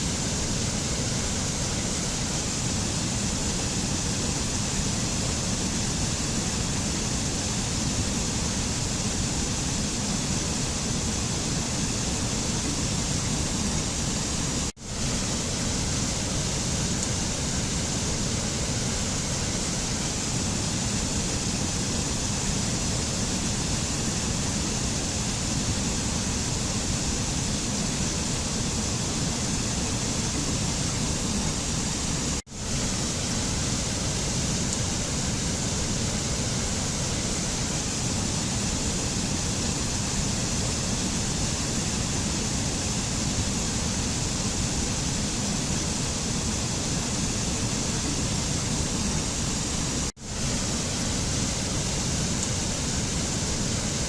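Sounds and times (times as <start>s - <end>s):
waterfall: 0.0s - 54.0s.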